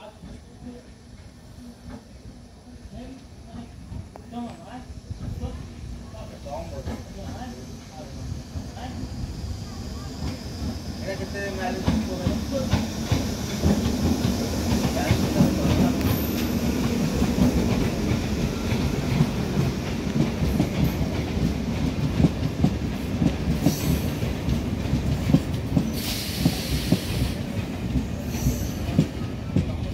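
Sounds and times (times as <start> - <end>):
train wheels clattering over rail joints: 11.7 - 29.9
short hisses: 25.9 - 27.5.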